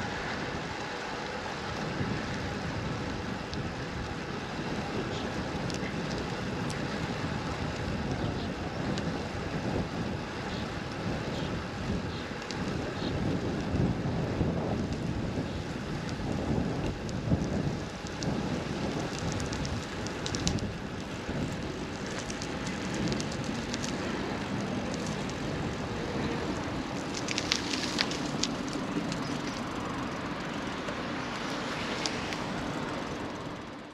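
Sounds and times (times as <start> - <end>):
wind on microphone: 1.6 - 33.6
faint clicks and ticks: 5.0 - 7.0, 7.7 - 9.1, 11.9 - 13.9, 16.0 - 33.9.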